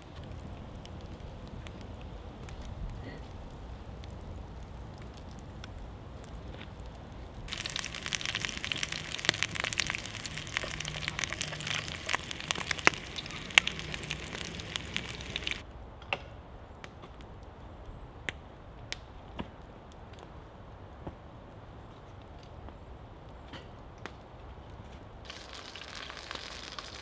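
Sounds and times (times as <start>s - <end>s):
meat sizzling in a pot: 7.5s - 15.6s, 25.3s - 27.0s.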